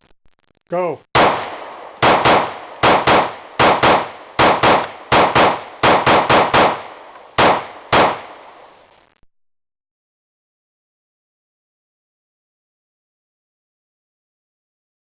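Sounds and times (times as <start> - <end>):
pistol shots: 1.2 - 8.8.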